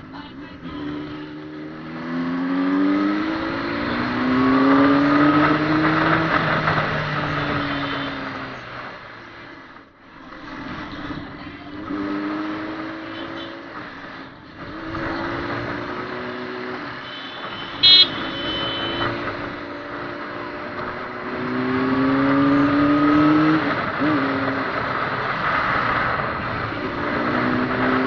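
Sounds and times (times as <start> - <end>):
vehicle engines pulling away: 0.0 - 9.7, 10.3 - 28.0
car horn toot: 7.3 - 8.5, 16.9 - 19.4.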